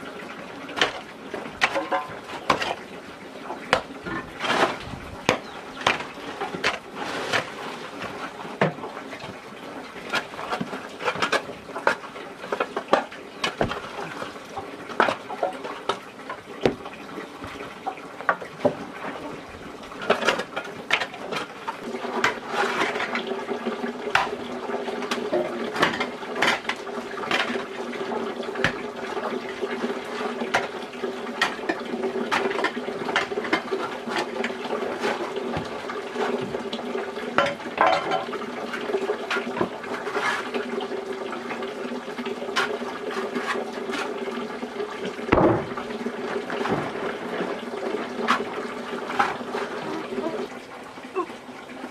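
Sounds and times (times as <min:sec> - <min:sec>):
water running and splashing: 0:00.0 - 0:51.9
sharp knocks and clatters: 0:00.8 - 0:02.8, 0:16.6 - 0:17.7, 0:45.3 - 0:45.9, 0:46.6 - 0:47.4.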